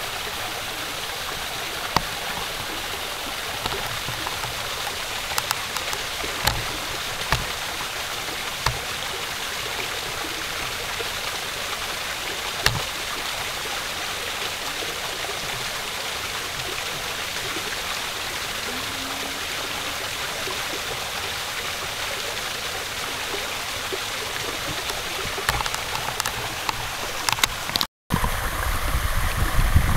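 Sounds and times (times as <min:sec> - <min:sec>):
flowing water rushing: 0:00.0 - 0:29.9
faint clicks: 0:01.8 - 0:11.0, 0:23.0 - 0:27.9.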